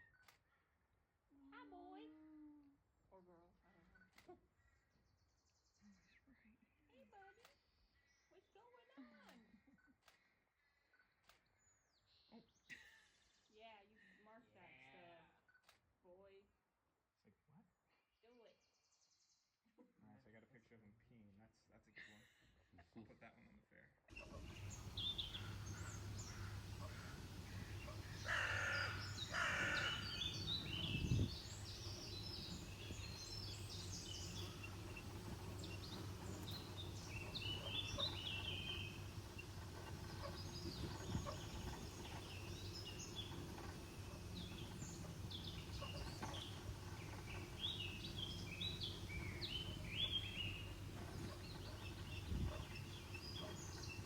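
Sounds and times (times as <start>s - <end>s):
birds calling: 24.2s - 54.0s
high bird chirps: 24.2s - 54.0s
steady low hum: 24.2s - 54.0s.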